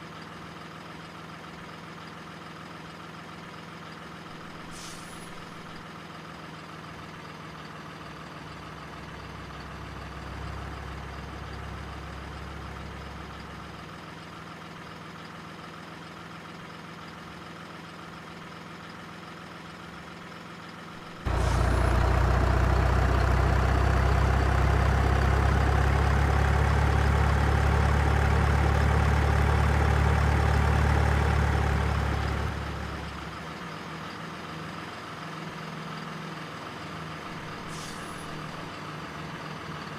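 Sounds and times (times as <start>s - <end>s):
model truck engine: 5.9s - 37.7s.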